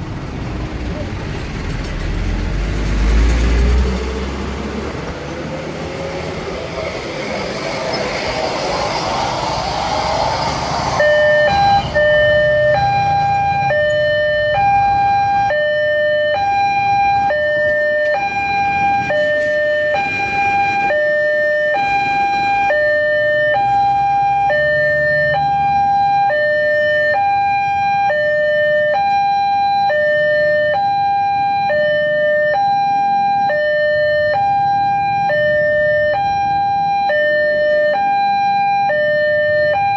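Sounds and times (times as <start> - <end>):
loud rushing noise: 2.3 - 13.5
level crossing two-tone alarm: 11.0 - 39.9.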